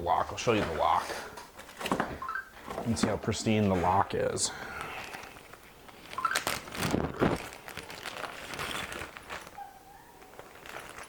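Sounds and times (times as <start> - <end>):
rustling: 2.6 - 11.0.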